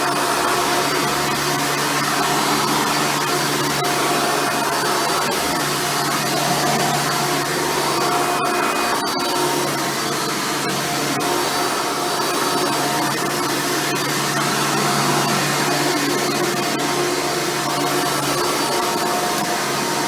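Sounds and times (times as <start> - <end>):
upright vacuum cleaner running: 0.6 - 8.8.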